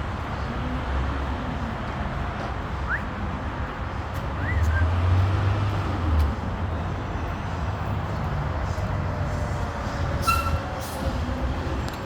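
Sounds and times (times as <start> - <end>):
vehicle engine rumbling: 0.0 - 12.0
short high-pitched squeal: 10.2 - 10.6.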